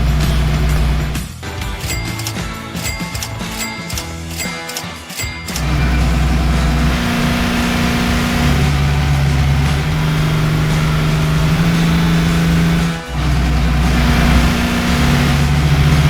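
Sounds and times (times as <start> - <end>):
vehicle engine running: 0.0 - 1.2, 5.6 - 16.0.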